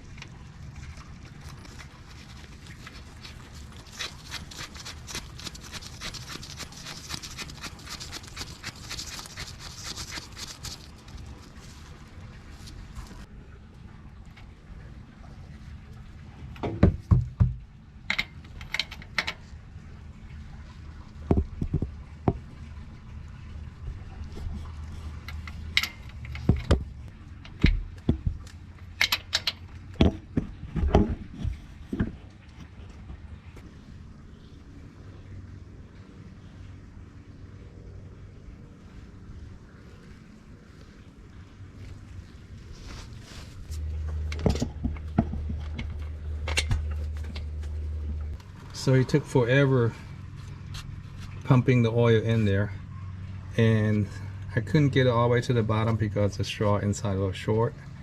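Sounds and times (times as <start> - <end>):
low hum: 0.0 - 58.0
hand fluid pump strokes: 0.6 - 13.3, 24.2 - 29.5
hand pump clicks and knocks: 16.6 - 19.4, 25.2 - 32.2, 44.1 - 47.7.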